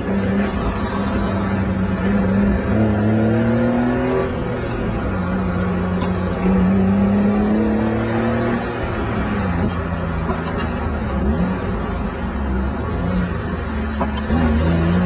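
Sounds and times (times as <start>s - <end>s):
road noise: 0.0s - 15.0s
car engine revving inside cabin: 1.6s - 9.8s, 14.2s - 15.0s.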